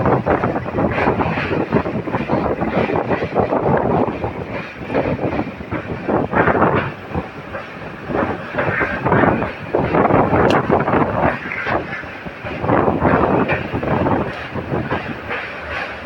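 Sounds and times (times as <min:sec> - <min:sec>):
train rumble: 0:00.0 - 0:16.0
wheels clattering on rails: 0:00.0 - 0:16.0.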